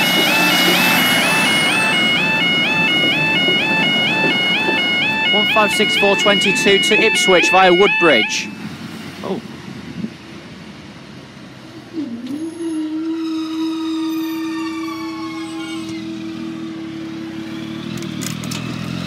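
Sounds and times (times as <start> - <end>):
steady warning tone: 0.0 - 8.8, 12.2 - 17.6
train whining tones: 0.0 - 9.4, 11.6 - 18.3.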